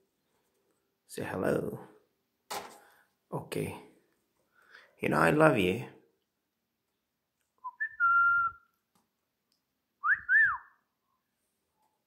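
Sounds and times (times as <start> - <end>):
person whistling: 7.6 - 8.7, 10.0 - 10.8.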